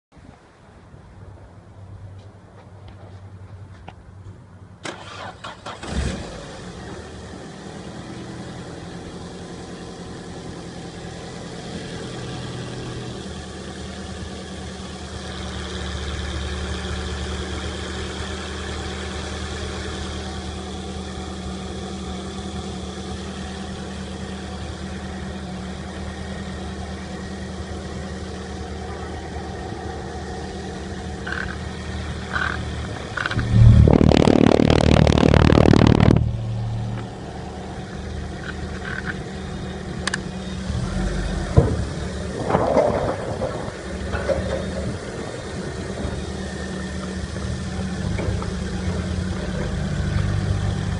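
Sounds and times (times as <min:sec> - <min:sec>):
car starter cranking: 0:04.8 - 0:06.4
car engine idling: 0:06.5 - 0:50.9.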